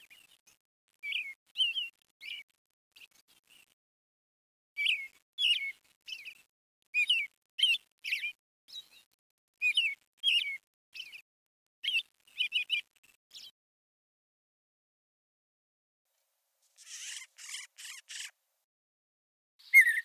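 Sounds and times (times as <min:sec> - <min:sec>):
bird chirping: 0:00.0 - 0:03.7, 0:04.8 - 0:11.2, 0:11.8 - 0:13.5, 0:16.8 - 0:18.4, 0:19.6 - 0:20.0.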